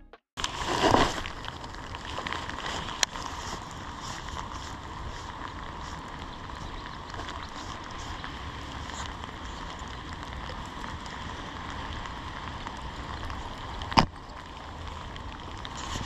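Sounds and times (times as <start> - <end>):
rain falling: 0.5 - 16.0.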